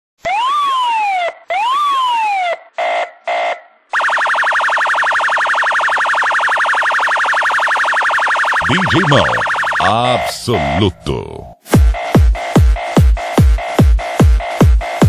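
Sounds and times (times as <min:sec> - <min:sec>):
siren wailing: 0:00.3 - 0:02.5, 0:04.0 - 0:10.0
pulsing alarm tone: 0:04.0 - 0:10.0.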